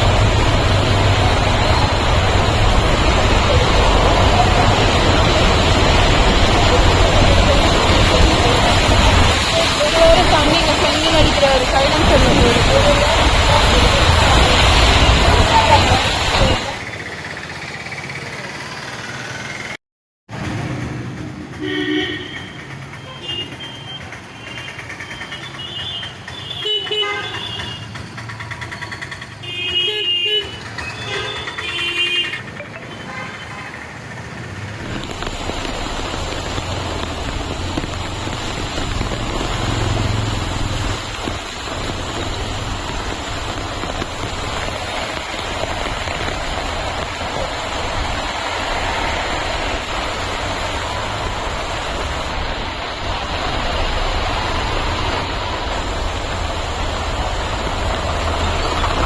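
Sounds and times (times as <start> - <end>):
loud rushing noise: 0.0 - 17.0, 34.7 - 59.0
vehicle horns honking: 21.6 - 24.0, 25.4 - 27.9, 29.4 - 33.8.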